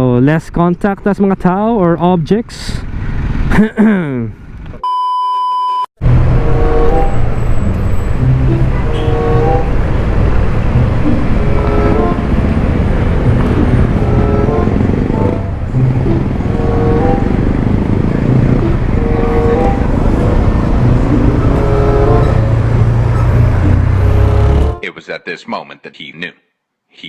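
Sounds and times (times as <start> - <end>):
scooter engine: 6.0 - 24.8.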